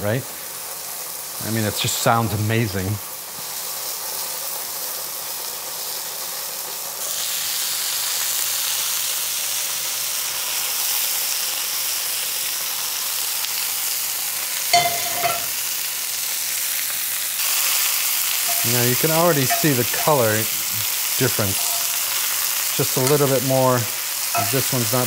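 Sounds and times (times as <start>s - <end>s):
mushrooms sizzling in oil: 0.0s - 25.0s
metal clank with short ring: 14.8s - 15.6s, 18.5s - 18.8s, 19.5s - 20.2s, 21.6s - 22.0s, 24.4s - 24.6s.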